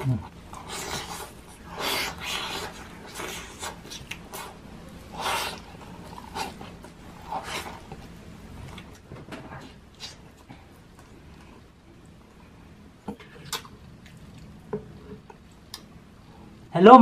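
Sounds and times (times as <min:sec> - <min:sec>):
chewing and lip-smacking: 0:00.5 - 0:09.0.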